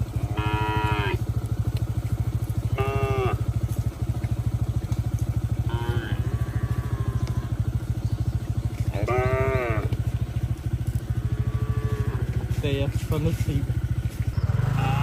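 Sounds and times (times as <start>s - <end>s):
cattle mooing: 0.0s - 1.3s, 2.6s - 3.6s, 5.5s - 7.8s, 8.7s - 12.6s, 14.4s - 15.0s
small motorcycle engine running: 0.0s - 15.0s.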